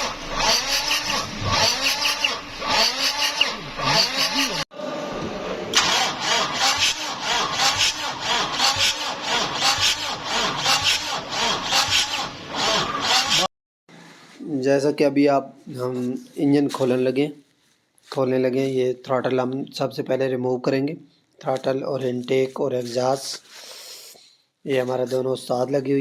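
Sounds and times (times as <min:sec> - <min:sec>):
starter motor cranking diesel engine: 0:00.0 - 0:04.6, 0:05.6 - 0:13.5.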